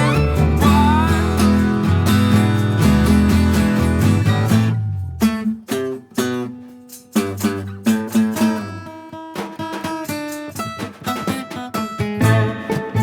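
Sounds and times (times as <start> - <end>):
live band music: 0.0 - 4.7, 12.2 - 13.0
plucked string notes: 0.0 - 6.5, 12.0 - 13.0.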